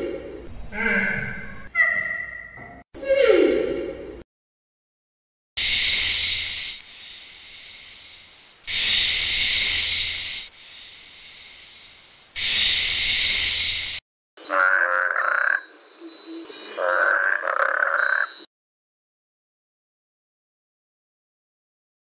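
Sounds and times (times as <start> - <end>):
toad croaking: 14.5 - 15.7, 16.8 - 18.4.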